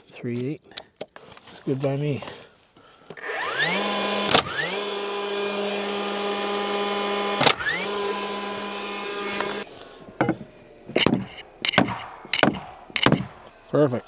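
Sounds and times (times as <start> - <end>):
power tool motor whining: 3.1 - 14.0
sharp wooden knocks: 3.2 - 13.8.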